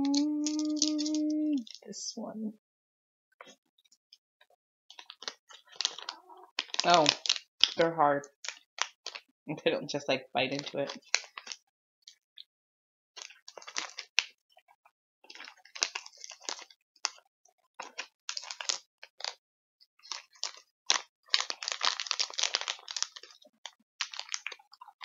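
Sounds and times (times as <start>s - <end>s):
hard candy being crunched: 0.0s - 1.9s, 4.9s - 9.3s, 10.6s - 11.6s, 13.2s - 14.4s, 15.3s - 17.2s, 17.8s - 19.4s, 20.0s - 25.0s.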